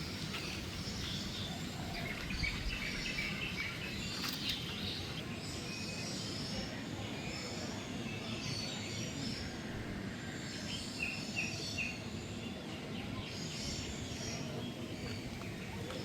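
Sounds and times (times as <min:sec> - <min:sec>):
birds calling and chirping: 0:00.0 - 0:09.8.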